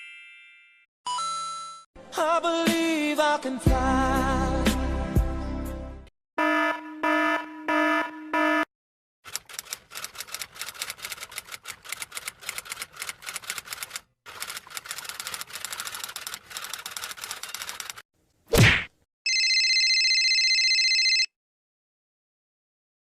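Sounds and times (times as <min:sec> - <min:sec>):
fast keyboard typing: 0:09.3 - 0:18.0.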